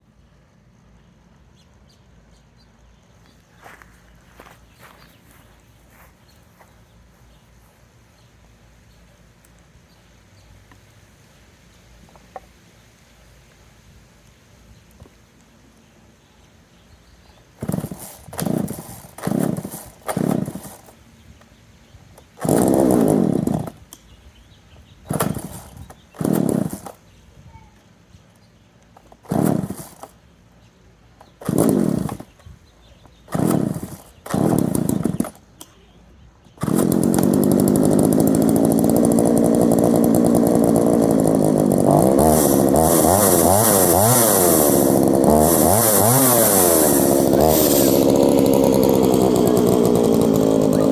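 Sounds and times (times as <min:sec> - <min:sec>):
chainsaw pull-start bursts: 0:17.5 - 0:21.0, 0:22.2 - 0:24.1, 0:25.0 - 0:27.1, 0:28.8 - 0:30.3, 0:31.2 - 0:35.8, 0:36.6 - 0:50.9
chainsaw engine running and revving: 0:17.6 - 0:21.0, 0:22.4 - 0:23.8, 0:25.1 - 0:27.0, 0:29.0 - 0:30.2, 0:31.3 - 0:32.4, 0:33.1 - 0:35.6, 0:36.6 - 0:50.9.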